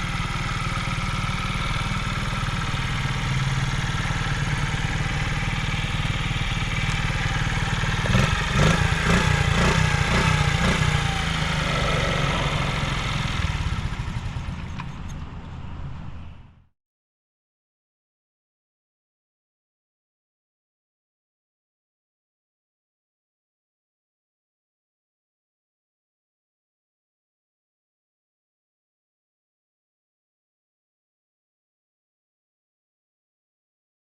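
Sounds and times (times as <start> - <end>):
motorcycle engine idling and revving: 0.0 - 16.6.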